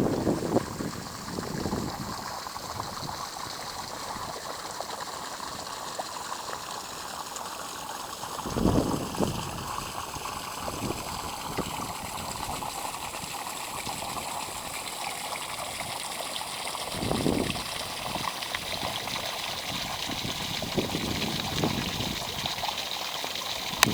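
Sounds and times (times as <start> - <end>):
running water: 0.0 - 23.9.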